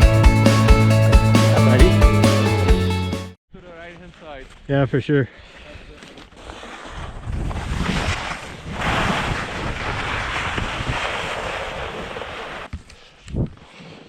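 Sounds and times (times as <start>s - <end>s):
wind on camera microphone: 6.8s - 13.7s
skis hissing over snow: 8.9s - 12.7s.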